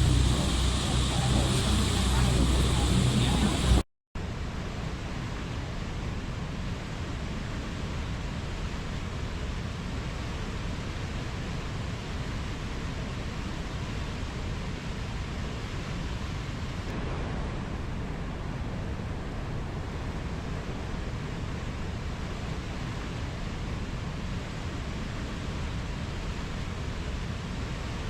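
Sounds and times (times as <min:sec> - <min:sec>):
waterfall rushing: 0:00.0 - 0:03.8.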